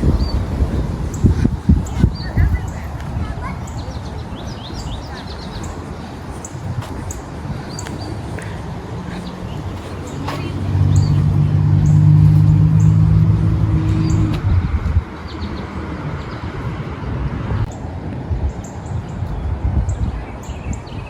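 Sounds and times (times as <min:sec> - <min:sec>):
small birds chirping: 0:00.0 - 0:16.6
engine humming: 0:00.0 - 0:18.1.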